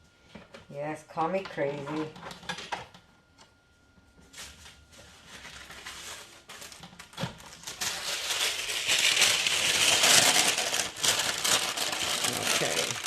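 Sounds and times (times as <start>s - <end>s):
aluminum foil crinkling: 4.4s - 13.0s.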